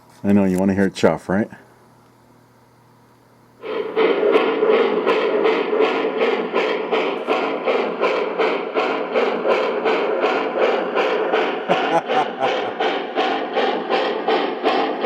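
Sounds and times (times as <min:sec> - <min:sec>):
model steam locomotive chuffing: 0:03.6 - 0:15.0.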